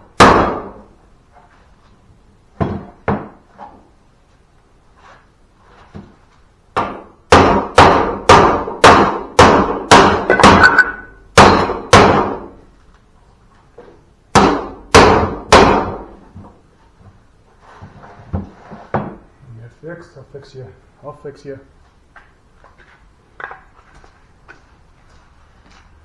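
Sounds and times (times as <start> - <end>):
hammer blows on metal: 9.9 - 11.6.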